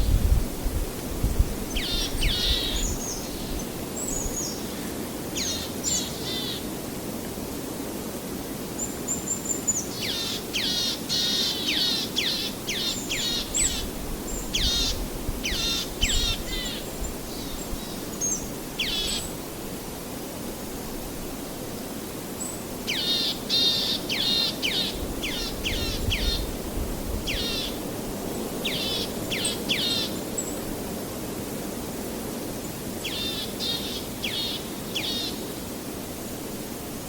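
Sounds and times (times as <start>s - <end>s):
songbirds calling: 1.6s - 6.7s, 8.8s - 19.4s, 22.4s - 30.7s, 32.6s - 35.7s.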